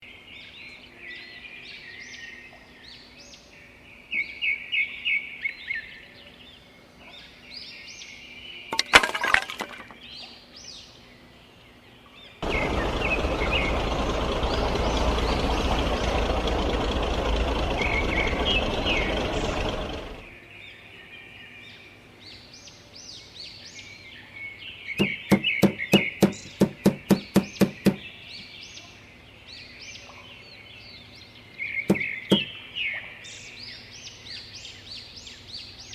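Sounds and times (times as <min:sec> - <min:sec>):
small birds chirping: 0:10.0 - 0:20.9, 0:21.7 - 0:35.9
quick run of knocks: 0:25.0 - 0:28.0, 0:31.9 - 0:32.5.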